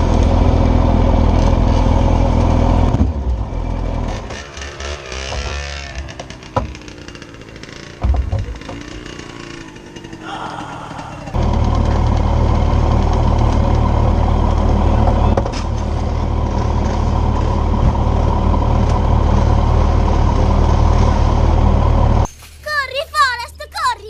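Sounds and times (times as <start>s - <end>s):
motorcycle engine running: 0.0s - 22.3s.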